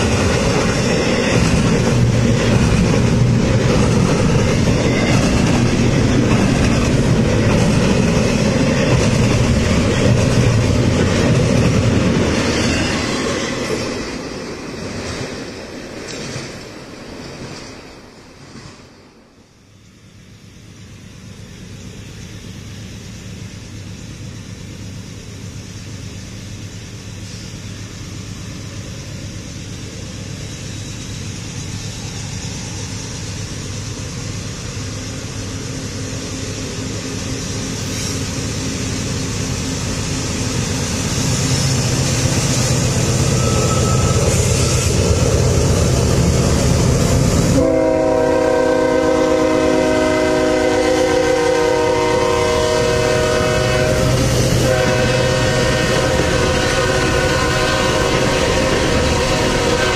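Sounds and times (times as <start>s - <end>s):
train rumble: 0.0s - 59.9s
locomotive horn: 47.4s - 59.9s.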